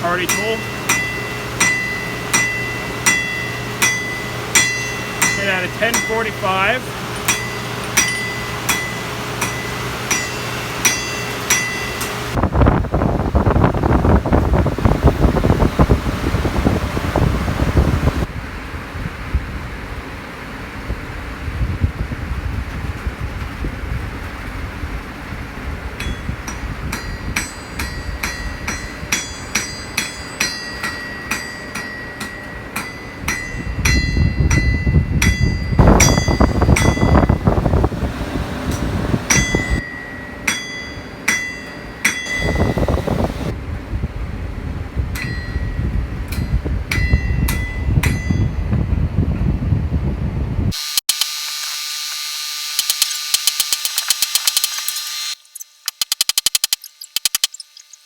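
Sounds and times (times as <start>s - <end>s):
hammer ringing on anvil: 0.0s - 12.2s, 26.0s - 37.4s, 39.3s - 43.5s, 45.2s - 48.6s
heavy rain hiss: 35.8s - 39.8s, 42.4s - 43.5s.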